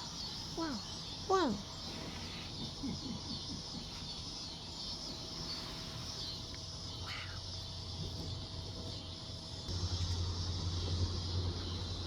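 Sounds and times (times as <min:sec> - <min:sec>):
low hum: 0:09.6 - 0:12.0.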